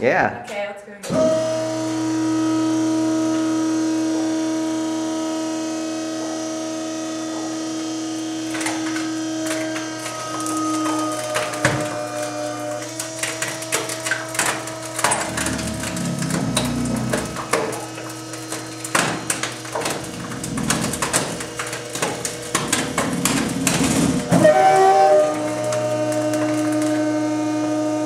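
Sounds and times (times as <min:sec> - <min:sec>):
compactor motor hum: 0:01.1 - 0:28.0
crunching plastic glass and metal: 0:05.6 - 0:28.0.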